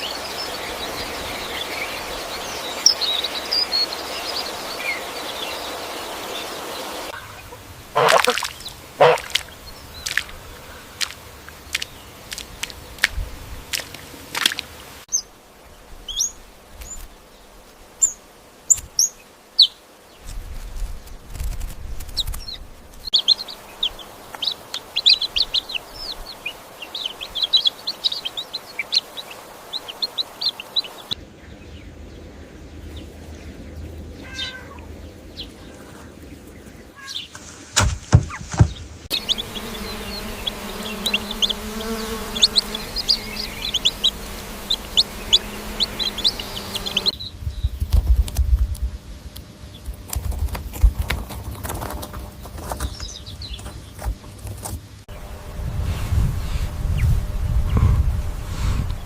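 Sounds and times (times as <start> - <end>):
small birds chirping: 0.0 - 48.7, 49.3 - 55.4
sharp knocks: 37.8 - 38.9.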